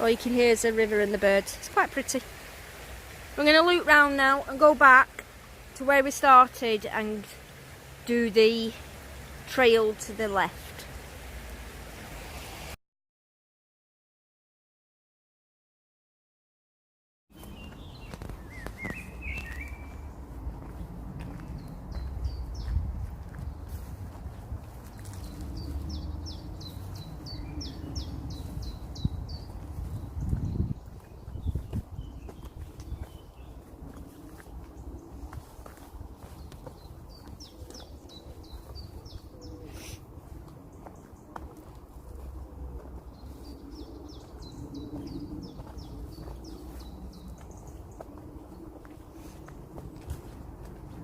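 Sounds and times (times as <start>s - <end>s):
songbird singing: 17.3s - 51.0s.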